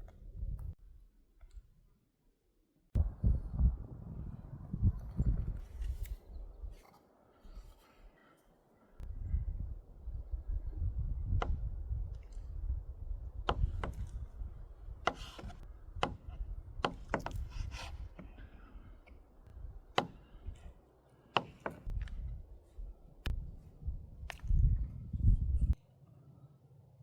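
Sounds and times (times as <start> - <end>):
low rumble: 3.0 - 6.8, 21.9 - 25.8
sharp knocks and clicks: 21.4 - 22.2.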